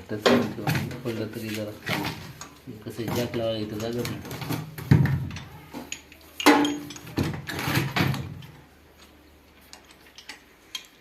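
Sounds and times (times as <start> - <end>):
tools knocking and clunking: 0.1 - 8.6.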